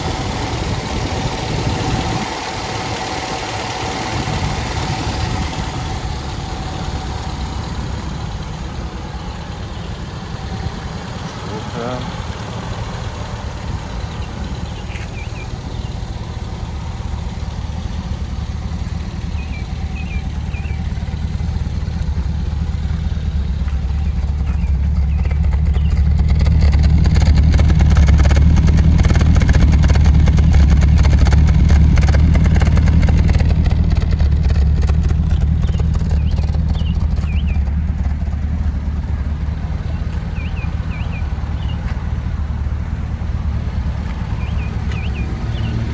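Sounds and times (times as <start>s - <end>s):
car engine idling: 0.0s - 45.9s
faint high chirps: 44.2s - 45.9s.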